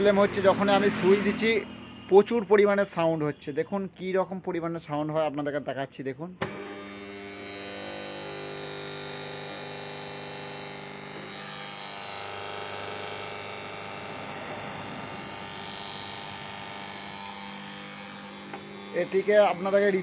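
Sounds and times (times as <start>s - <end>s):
contactor buzzing mains hum: 6.4s - 20.0s.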